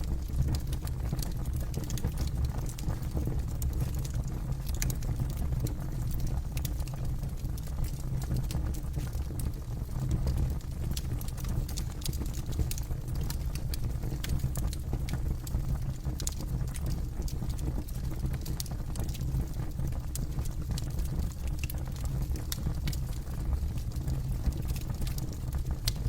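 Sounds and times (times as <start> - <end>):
campfire crackling: 10.3 - 26.0.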